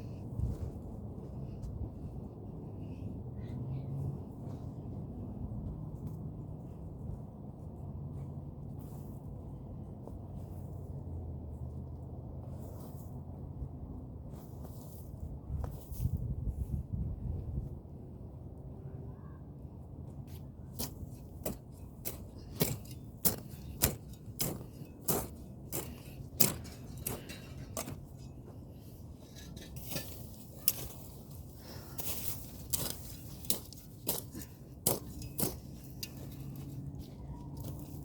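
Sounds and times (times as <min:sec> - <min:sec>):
hand tool striking ground: 0:20.8 - 0:36.9.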